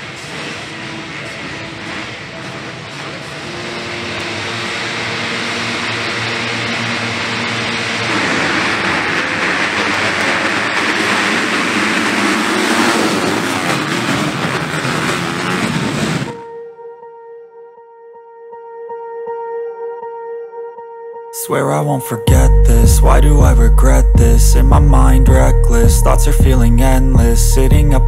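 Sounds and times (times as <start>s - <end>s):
motocross bike engines roaring: 0.0s - 16.4s.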